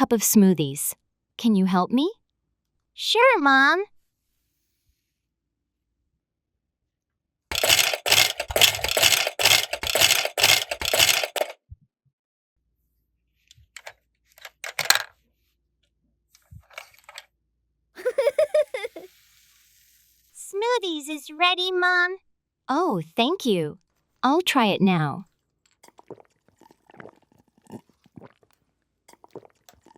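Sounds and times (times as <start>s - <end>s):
dense rattle of sharp strokes: 7.5s - 11.6s
toy kitchen pieces clattering: 7.5s - 11.6s, 13.8s - 15.1s, 16.7s - 17.3s.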